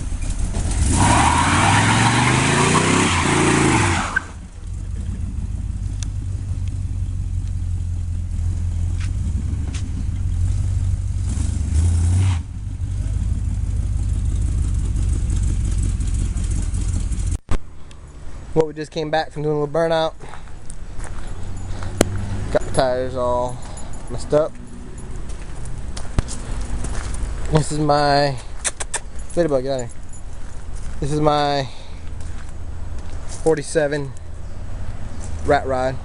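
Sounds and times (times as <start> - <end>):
truck engine revving: 0.0 - 17.5.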